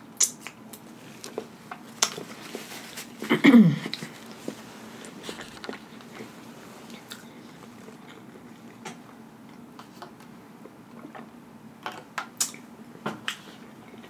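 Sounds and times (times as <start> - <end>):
person chewing with mouth clicks: 0.2 - 2.3, 6.9 - 9.7, 12.4 - 12.6.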